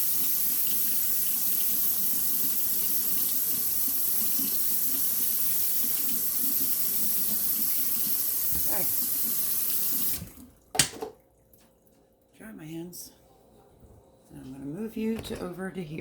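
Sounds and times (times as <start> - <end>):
tap running into sink: 8.4 - 8.9, 10.0 - 11.2.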